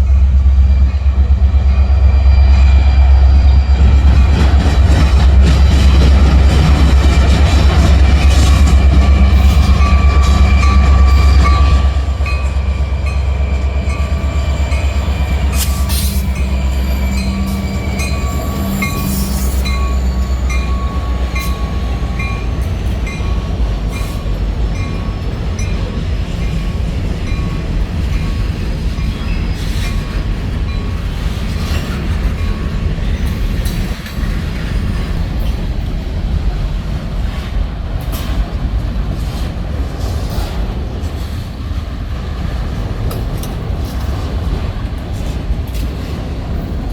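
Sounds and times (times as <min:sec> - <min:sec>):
freight train rolling past: 0:00.0 - 0:46.9.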